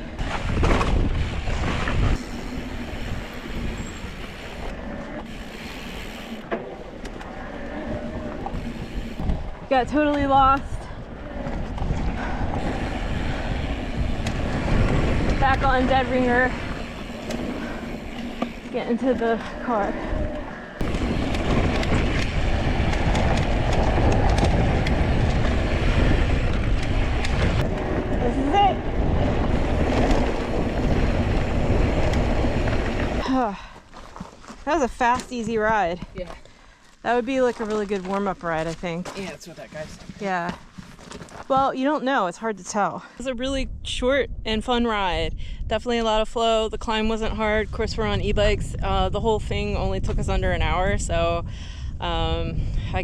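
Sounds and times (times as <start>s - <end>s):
wind rumble on microphone: 0.0s - 36.2s, 43.3s - 53.0s
bike tyres rolling on dirt trail: 0.0s - 42.4s, 46.0s - 51.9s
sharp clicks and knocks from bike: 11.4s - 19.4s, 20.8s - 27.9s, 29.3s - 33.2s.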